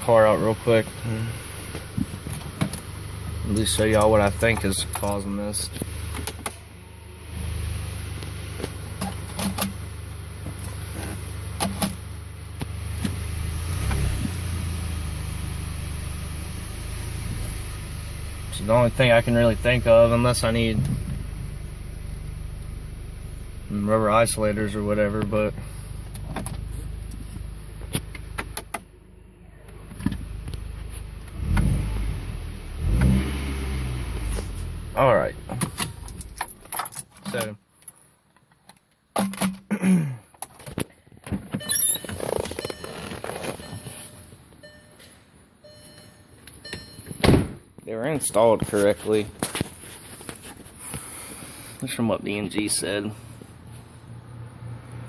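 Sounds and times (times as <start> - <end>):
car engine idling: 0.0 - 36.8.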